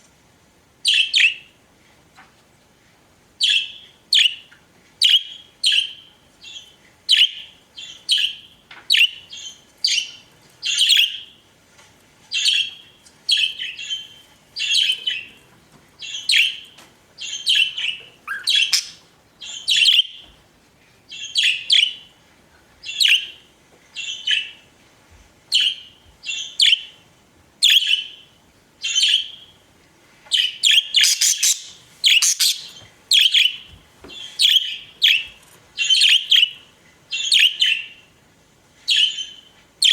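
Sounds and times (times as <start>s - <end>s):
budgerigars chirping: 3.4s - 11.3s, 16.0s - 20.3s, 21.1s - 22.1s, 22.8s - 23.4s, 27.6s - 28.2s, 28.8s - 29.5s, 30.4s - 38.0s.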